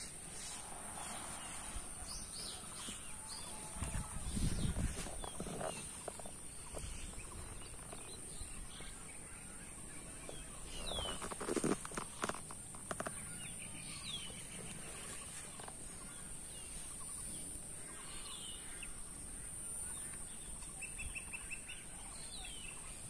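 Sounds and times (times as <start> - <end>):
birds chirping: 0.0 - 23.0
steady high hiss: 0.0 - 23.0
low rustles and thumps: 1.0 - 8.5.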